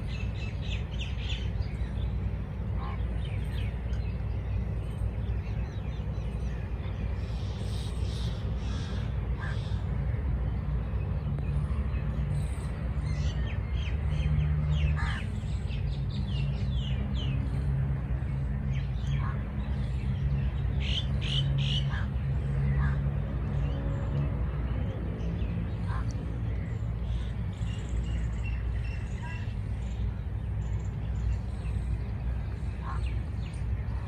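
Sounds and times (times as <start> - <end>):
harsh bird calls: 0.0 - 34.0
small birds chirping: 0.0 - 34.0
steady low rumble: 0.0 - 34.0.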